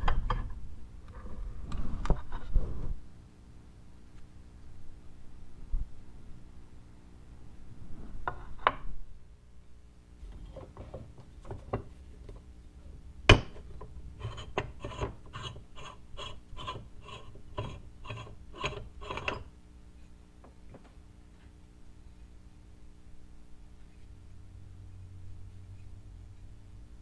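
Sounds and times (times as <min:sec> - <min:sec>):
hand tool scraping rusty metal: 0:13.3 - 0:19.6.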